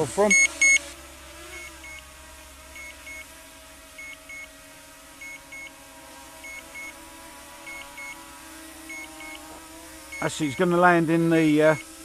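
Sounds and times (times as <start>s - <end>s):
faint steady hum: 0.0s - 12.0s
remote controller beeping: 0.3s - 0.8s, 10.1s - 10.4s.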